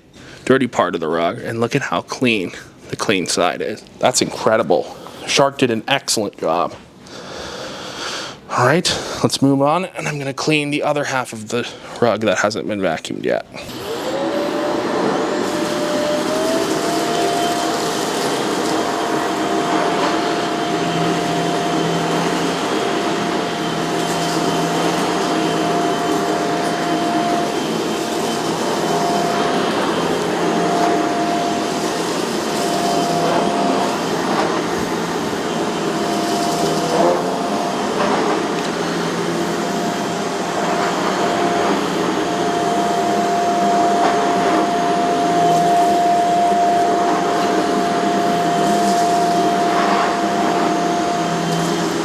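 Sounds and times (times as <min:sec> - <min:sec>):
vacuum cleaner running: 0:13.4 - 0:52.0.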